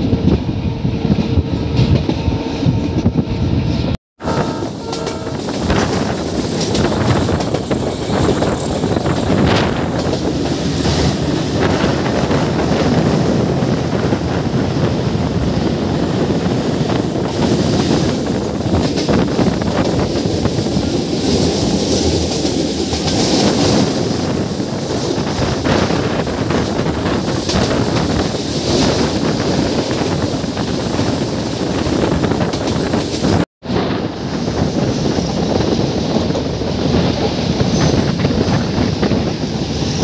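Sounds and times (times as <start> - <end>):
train wheels rumbling on rails: 0.0 - 40.0
wind buffeting microphone: 0.0 - 40.0.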